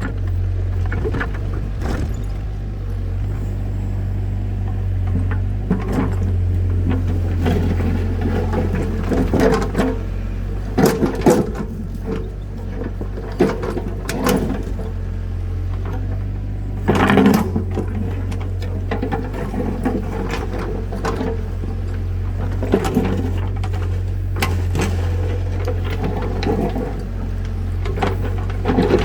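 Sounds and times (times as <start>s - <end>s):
sharp knocks and clatters: 0.1s - 3.7s.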